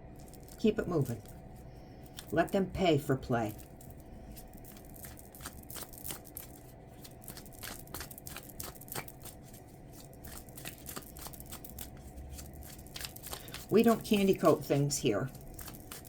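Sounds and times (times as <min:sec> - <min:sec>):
cards being shuffled: 0:00.2 - 0:02.6, 0:03.5 - 0:16.0.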